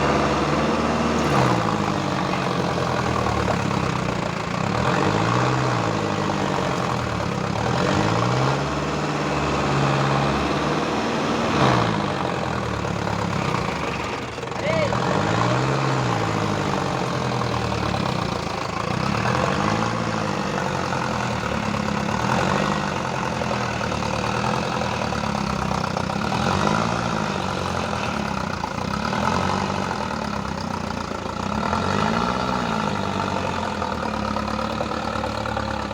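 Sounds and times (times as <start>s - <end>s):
diesel engine revving: 0.0s - 35.9s.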